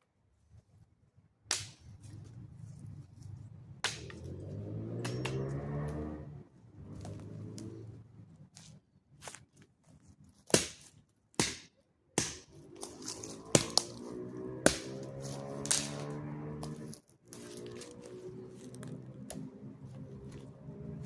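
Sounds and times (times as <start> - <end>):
motorcycle engine hum: 2.0 - 8.5, 12.5 - 21.0.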